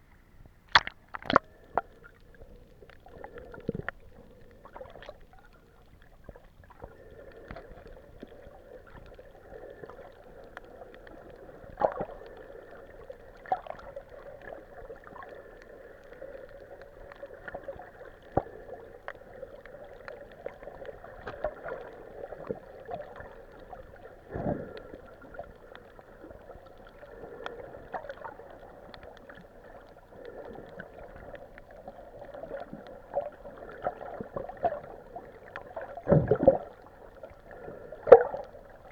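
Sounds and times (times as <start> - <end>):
muffled underwater hum: 0.0 - 38.9
underwater clicks: 0.4 - 9.2, 35.5 - 36.8, 38.0 - 38.9.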